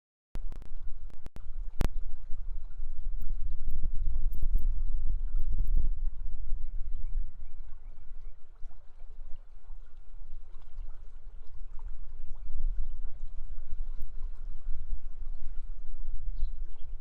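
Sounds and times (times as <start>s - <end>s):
low rumble: 0.4s - 8.3s.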